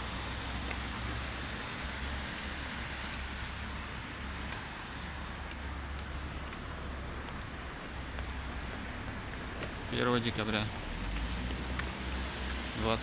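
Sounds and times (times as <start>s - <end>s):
road traffic hiss: 0.0s - 13.0s
faint clicks: 5.4s - 5.7s.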